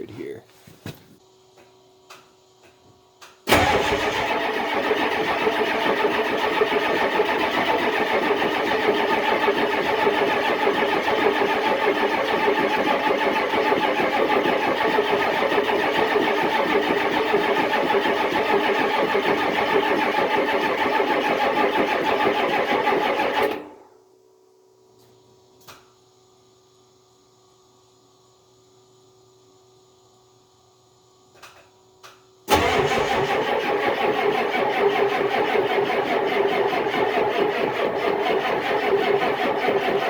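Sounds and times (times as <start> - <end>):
truck engine cranking by starter: 3.5 - 23.7, 32.5 - 40.0.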